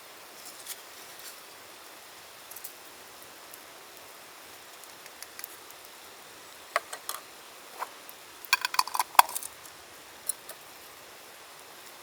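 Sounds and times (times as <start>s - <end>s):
small hard objects clinking: 8.5s - 9.7s.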